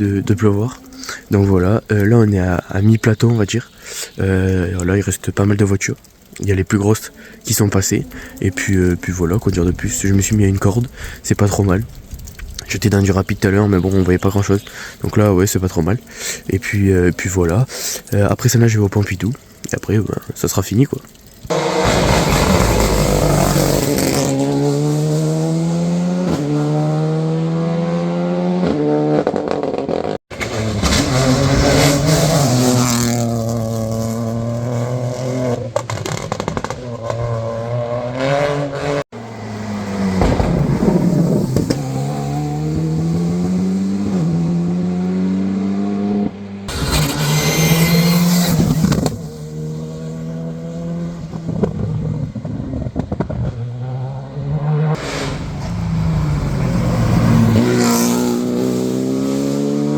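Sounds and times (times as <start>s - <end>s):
rally car engine accelerating: 21.5s - 59.9s
harsh noisy burst: 46.7s - 49.4s.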